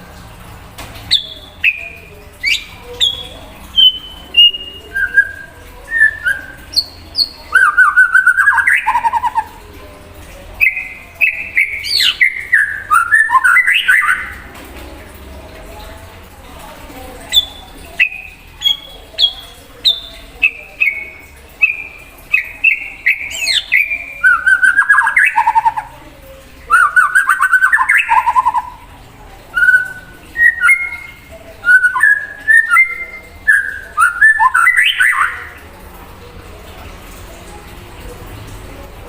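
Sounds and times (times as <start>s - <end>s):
bird singing whistled notes: 1.1s - 9.5s, 10.6s - 14.4s, 17.4s - 25.9s, 26.7s - 28.7s, 29.6s - 35.5s.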